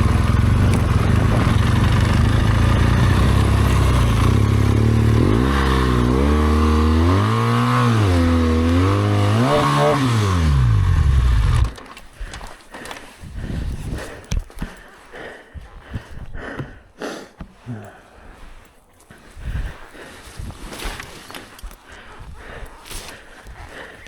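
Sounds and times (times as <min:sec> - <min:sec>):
motorcycle engine revving: 0:00.0 - 0:11.8
faint clicks and crunches: 0:11.6 - 0:15.0, 0:20.1 - 0:24.0.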